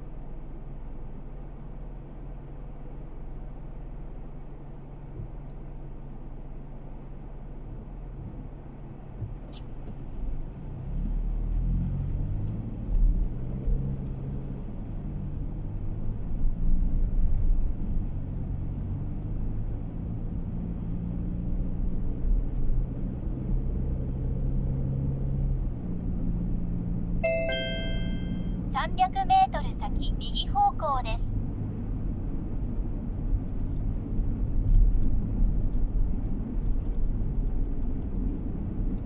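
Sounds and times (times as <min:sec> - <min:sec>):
road noise inside car: 0:00.0 - 0:39.0
car engine accelerating: 0:10.2 - 0:27.1
short electronic chime: 0:27.2 - 0:28.5.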